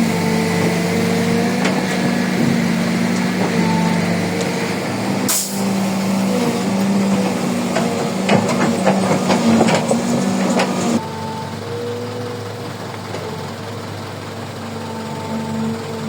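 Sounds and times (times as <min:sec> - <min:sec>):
diesel machinery running: 0:00.0 - 0:16.0
air hiss: 0:05.3 - 0:06.2
metal knocks and clanks: 0:06.3 - 0:11.0.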